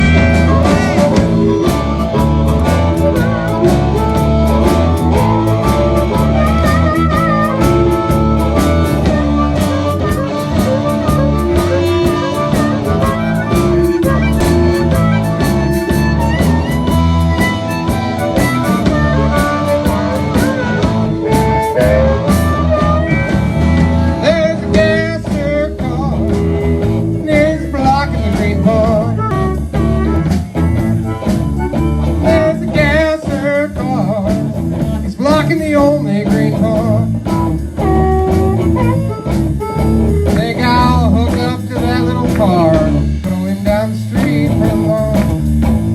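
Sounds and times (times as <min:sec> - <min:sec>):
wavering lead melody: 0:00.0 - 0:33.2
blues band playing: 0:00.0 - 0:45.9.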